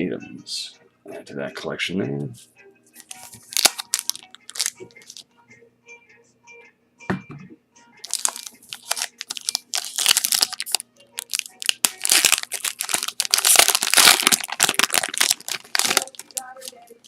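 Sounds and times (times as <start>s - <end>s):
wrapper crinkling and tearing: 3.0s - 5.2s, 8.0s - 17.0s
soft thump: 7.1s - 7.6s.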